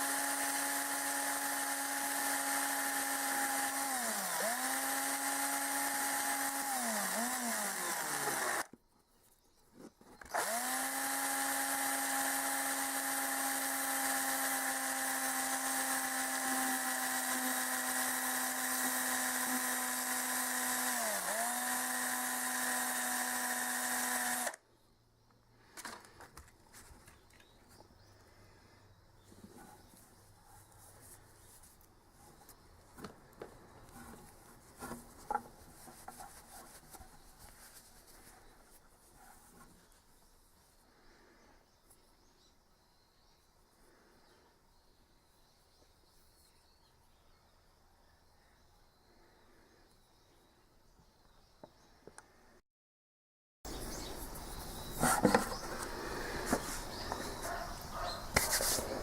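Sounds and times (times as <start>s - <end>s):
power tool motor whining: 0.0s - 8.7s, 10.2s - 24.6s.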